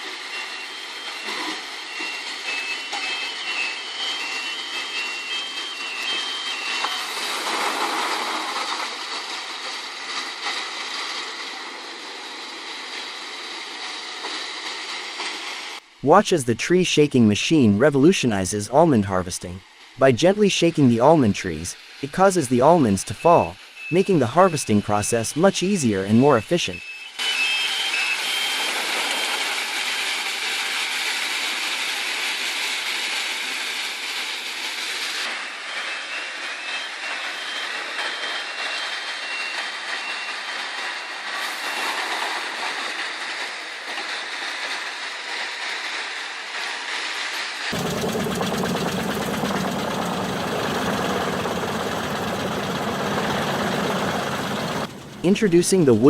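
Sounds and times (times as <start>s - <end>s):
tree shaker machine running: 47.7s - 56.0s.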